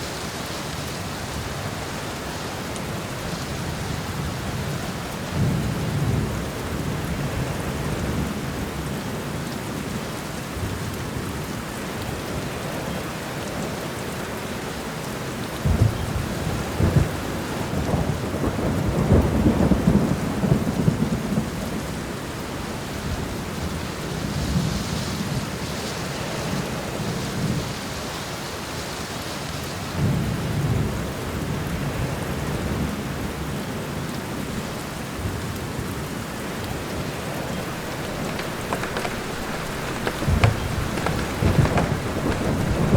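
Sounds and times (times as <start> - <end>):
steady rain: 0.0 - 42.9
thunder rumbling and cracking: 37.5 - 42.9.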